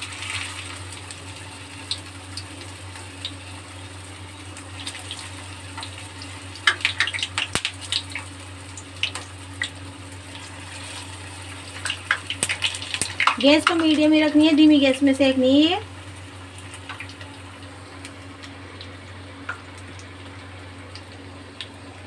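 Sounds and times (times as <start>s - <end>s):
patties sizzling in hot oil: 0.0s - 22.0s
oil crackling and spattering: 4.3s - 14.5s, 16.0s - 21.8s.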